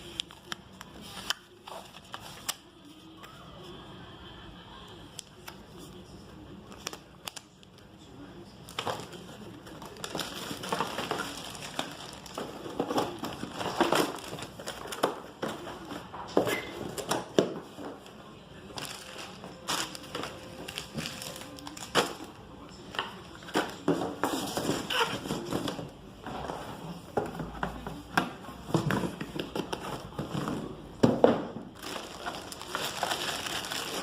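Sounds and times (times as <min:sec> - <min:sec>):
plastic and paper crinkling: 0:00.0 - 0:03.2, 0:08.6 - 0:16.2, 0:16.8 - 0:25.9, 0:31.7 - 0:34.0.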